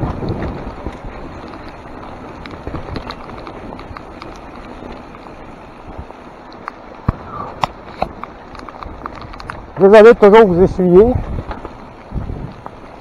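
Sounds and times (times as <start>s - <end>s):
bike tyres on wet trail: 0.0s - 13.0s
heavy rain: 0.0s - 13.0s.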